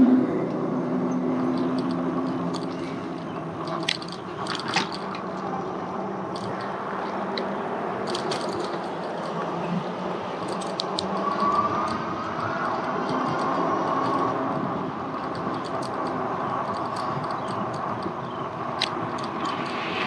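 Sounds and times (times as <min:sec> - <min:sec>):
traffic: 0:00.0 - 0:20.0
small clicks: 0:01.4 - 0:05.5, 0:15.2 - 0:18.2, 0:18.8 - 0:20.0.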